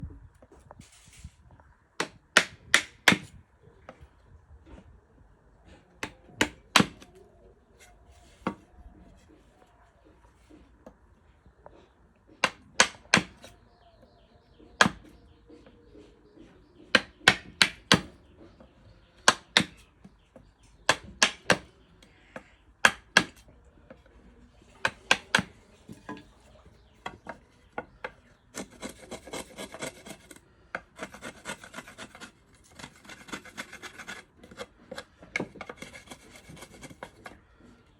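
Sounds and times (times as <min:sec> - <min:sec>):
wood being filed: 0:24.8 - 0:37.9.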